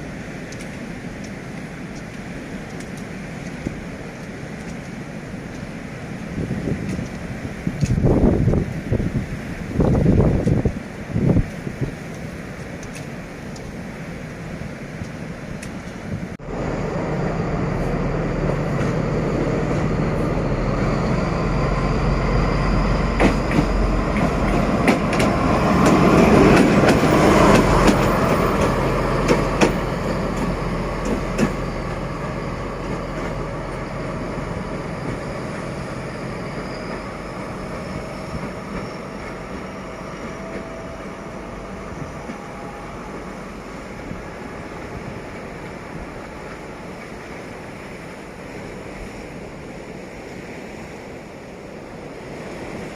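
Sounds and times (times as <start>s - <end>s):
locomotive engine drone: 0.0s - 52.9s
wheels clicking over rail joints: 23.1s - 42.5s.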